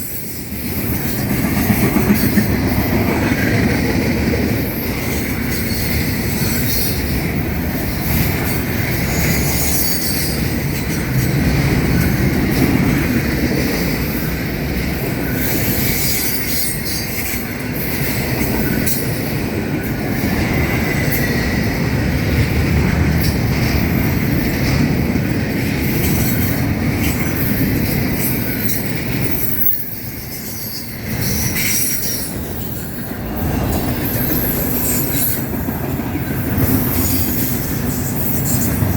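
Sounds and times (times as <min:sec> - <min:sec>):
train wheels rumbling on rail: 0:00.0 - 0:38.9
wheels clicking over rail joints: 0:00.0 - 0:38.9
wheel squeal: 0:09.2 - 0:10.4.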